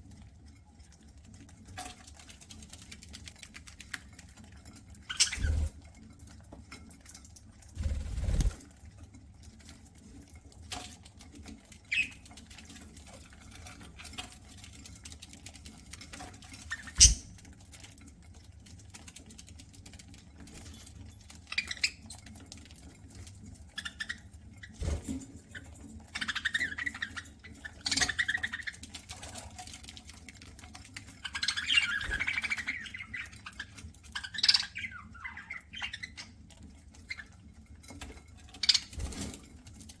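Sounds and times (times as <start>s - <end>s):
budgie chirping and chatter: 5.1s - 5.7s, 16.7s - 17.3s, 31.2s - 36.3s
birds cracking seeds: 7.8s - 8.7s, 31.2s - 33.6s.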